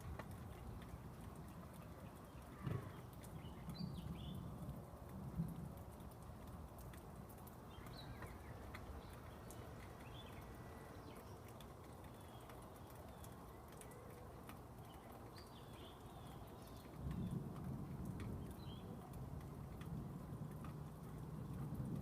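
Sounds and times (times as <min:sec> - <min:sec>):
light dripping clicks: 0:00.0 - 0:22.0
distant thunder rumble: 0:02.4 - 0:06.2, 0:16.6 - 0:22.0.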